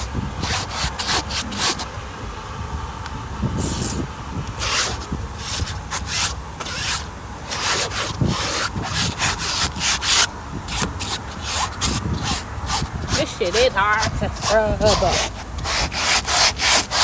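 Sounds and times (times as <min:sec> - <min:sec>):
scrub brush scrubbing upholstery: 0:04.6 - 0:17.0.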